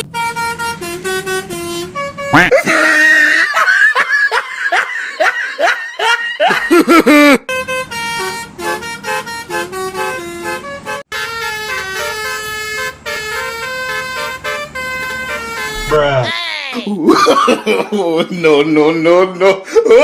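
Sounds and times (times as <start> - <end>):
bus horn playing a tune: 0.0 - 2.8, 7.4 - 16.3
swooping horn tones: 0.0 - 3.4, 7.5 - 16.3.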